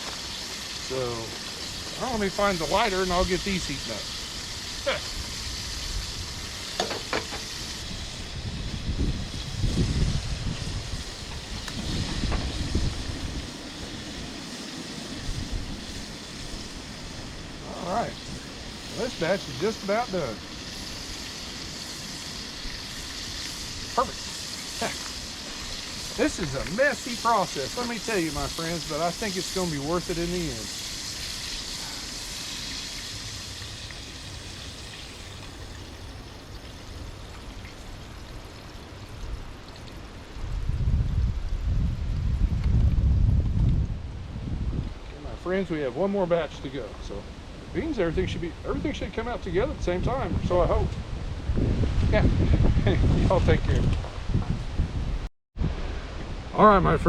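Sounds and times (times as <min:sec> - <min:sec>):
steady hiss: 0:00.0 - 0:40.5, 0:44.8 - 0:51.0
food sizzling in frying oil: 0:00.0 - 0:43.8
wind buffeting microphone: 0:05.0 - 0:24.1, 0:40.3 - 0:45.4, 0:47.1 - 0:57.0.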